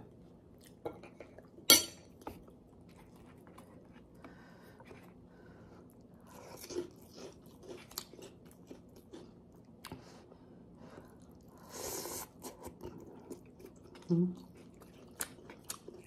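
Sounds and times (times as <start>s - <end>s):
crunching and chewing pork rind: 5.9s - 10.2s, 12.3s - 16.0s.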